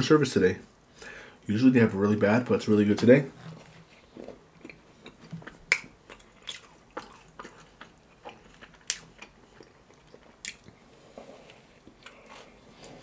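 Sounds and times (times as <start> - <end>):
biscuit chewing: 3.8 - 13.0
wet mouth clicks and smacks: 5.4 - 7.4, 8.6 - 10.8.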